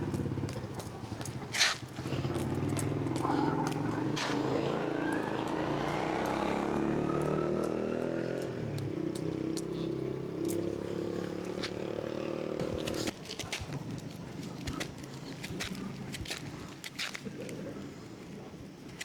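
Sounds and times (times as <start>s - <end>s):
small engine running: 0.0s - 13.7s.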